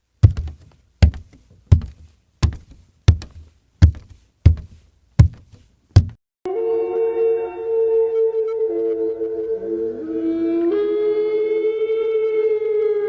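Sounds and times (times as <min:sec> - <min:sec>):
sharp knocks with dull thud: 0:00.2 - 0:06.2
steady pitched tone: 0:06.5 - 0:12.9.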